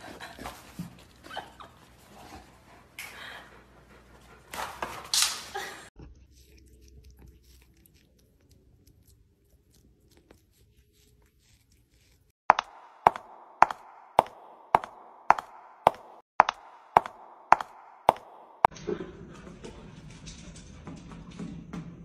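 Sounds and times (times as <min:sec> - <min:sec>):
dog chewing carrots: 0:06.0 - 0:12.3.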